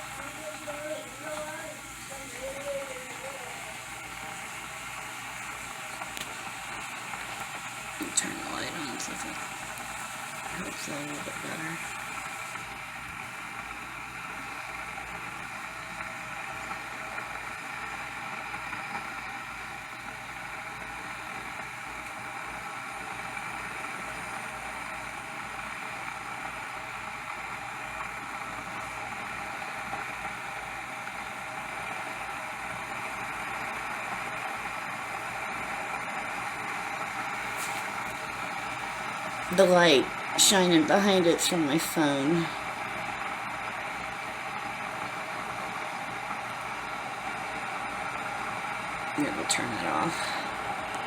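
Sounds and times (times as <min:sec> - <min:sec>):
electric kettle heating water: 0:00.0 - 0:51.0.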